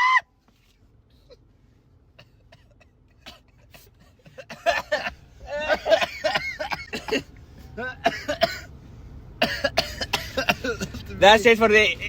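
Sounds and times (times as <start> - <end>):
person coughing: 2.2 - 7.3, 8.0 - 8.7, 9.4 - 11.0.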